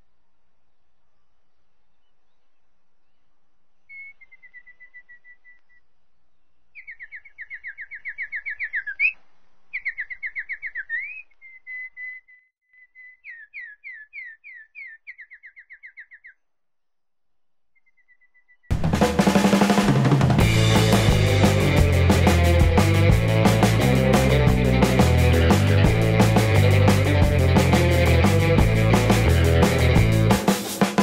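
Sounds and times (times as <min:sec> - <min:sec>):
songbird trilling: 0:03.8 - 0:05.8, 0:06.8 - 0:16.4, 0:17.8 - 0:18.7.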